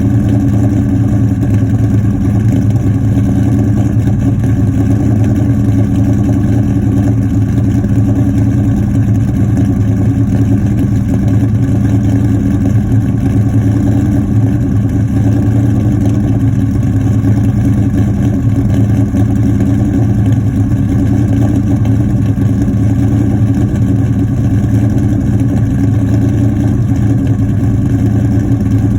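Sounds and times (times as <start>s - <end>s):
vee eight engine idling: 0.0s - 28.9s.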